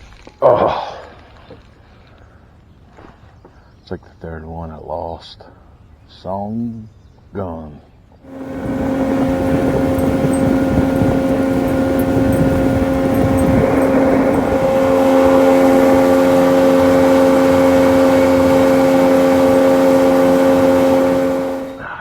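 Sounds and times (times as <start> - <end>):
outboard motor running: 8.3 - 21.9.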